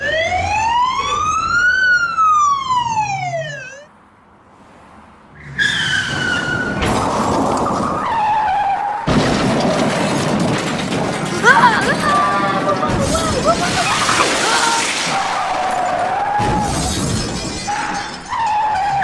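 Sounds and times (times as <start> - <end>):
siren wail: 0.0 - 3.9, 5.4 - 9.2, 11.4 - 17.0, 17.6 - 19.0
car tyres screeching: 1.0 - 19.0.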